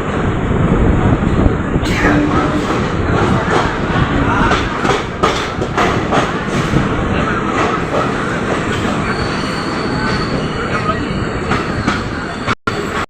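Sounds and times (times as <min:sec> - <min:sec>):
train rumbling on rails: 0:00.0 - 0:13.0
wheels clattering over rail joints: 0:02.2 - 0:09.0.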